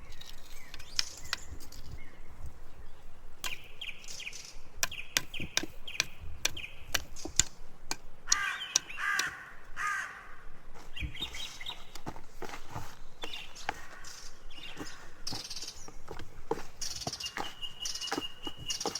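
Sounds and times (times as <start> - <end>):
birds chirping: 0.0 - 18.9
sharp clicks and taps: 4.8 - 9.8
harsh bird caws: 8.2 - 10.6, 13.6 - 15.2.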